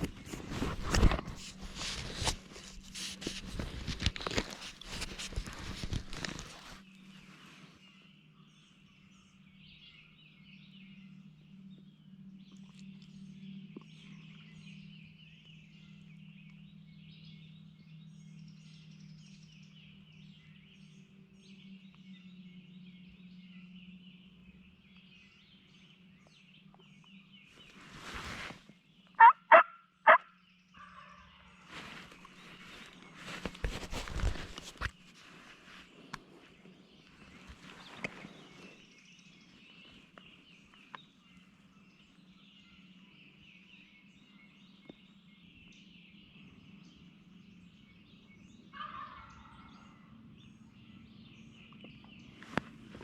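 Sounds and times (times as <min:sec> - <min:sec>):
brief rustle: 0:00.0 - 0:07.7, 0:27.5 - 0:28.8, 0:31.6 - 0:38.8
faint songbird chirps: 0:00.0 - 0:53.0
low steady hum: 0:00.0 - 0:53.0
turkey yelps: 0:29.2 - 0:30.2.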